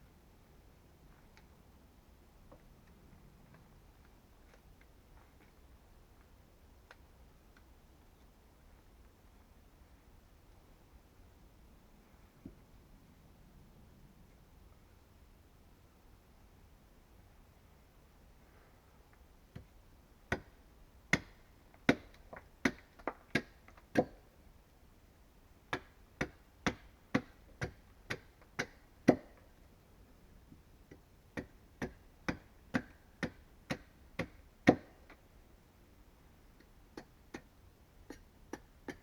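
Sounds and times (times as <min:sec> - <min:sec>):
hand tool striking wood: 0:31.4 - 0:34.9.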